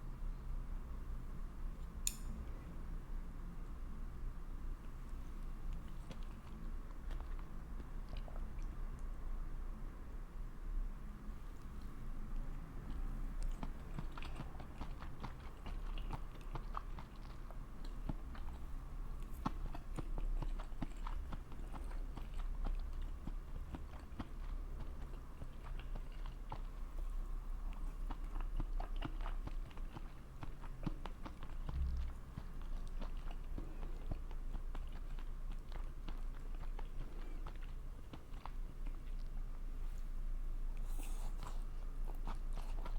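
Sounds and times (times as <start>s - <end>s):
person chewing food: 4.8s - 9.2s, 11.6s - 42.9s.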